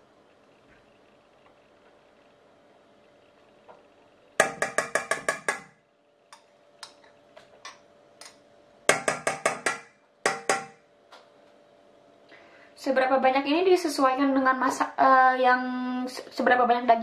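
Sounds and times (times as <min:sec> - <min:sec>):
teaspoon tapping on rim: 0:04.4 - 0:05.7, 0:08.2 - 0:10.8.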